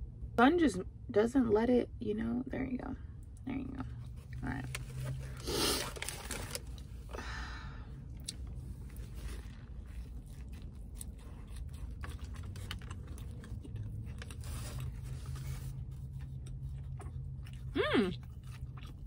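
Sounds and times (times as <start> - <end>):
steady low hum: 0.0 - 19.0
person chewing with wet clicks: 8.1 - 19.0.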